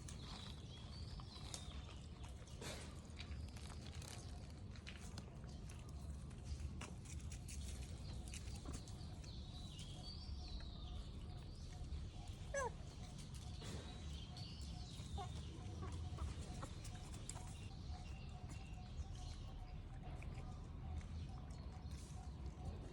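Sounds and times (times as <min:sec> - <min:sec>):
animal calls and chirps: 0:07.5 - 0:22.9.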